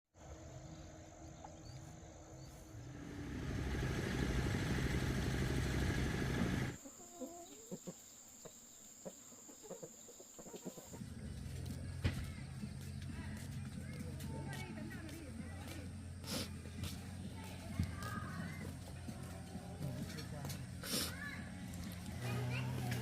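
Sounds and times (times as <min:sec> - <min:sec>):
motor engine running: 0:00.5 - 0:06.8, 0:11.0 - 0:23.0
chickens clucking: 0:06.4 - 0:11.8.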